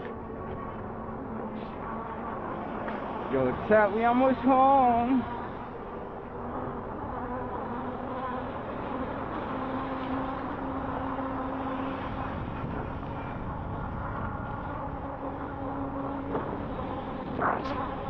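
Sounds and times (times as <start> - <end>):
electric bike motor whining: 4.9 - 18.0.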